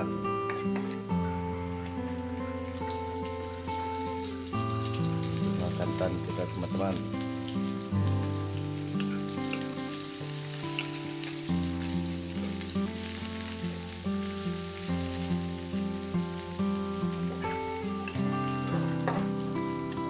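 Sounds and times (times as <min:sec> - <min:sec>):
background music: 0:00.0 - 0:20.0
vegetables sizzling in oil: 0:01.2 - 0:20.0.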